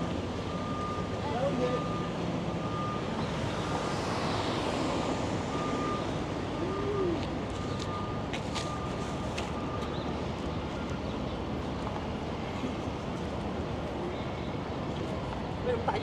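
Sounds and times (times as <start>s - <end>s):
city street traffic: 0.0s - 16.0s
vehicle reversing beeper: 0.4s - 3.8s, 5.5s - 10.2s.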